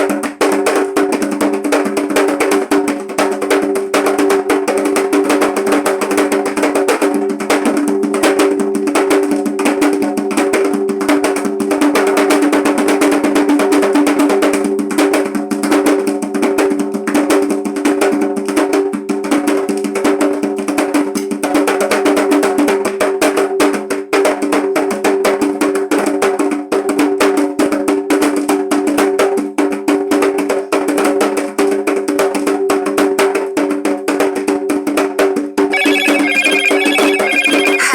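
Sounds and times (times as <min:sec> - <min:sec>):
hand drums playing fast rhythm: 0:00.0 - 0:28.2
steady ringing tone: 0:35.8 - 0:37.9.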